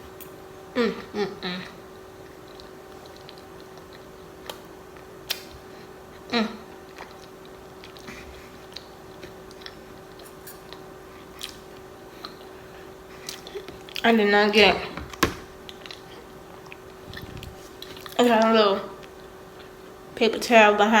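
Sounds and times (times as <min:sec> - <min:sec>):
wet chewing mouth sounds: 0:02.2 - 0:14.1, 0:15.6 - 0:18.2.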